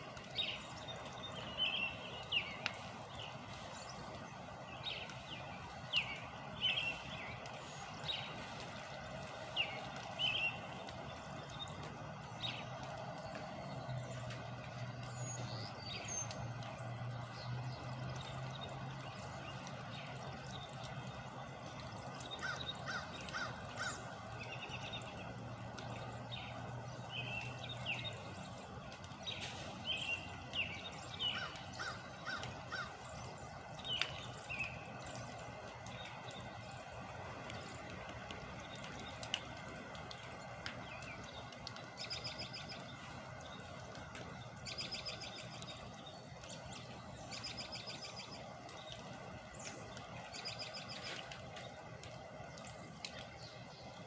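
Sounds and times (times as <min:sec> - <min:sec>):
birds calling: 0:00.0 - 0:54.0
low steady hum: 0:00.0 - 0:54.0
outdoor background noise: 0:00.0 - 0:54.0
caw-like bird calls: 0:22.4 - 0:24.1, 0:31.3 - 0:33.0.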